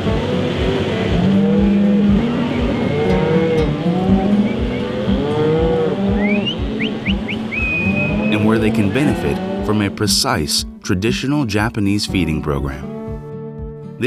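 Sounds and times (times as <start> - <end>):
cattle mooing: 0.0 - 10.1
music with low beat: 0.0 - 14.0.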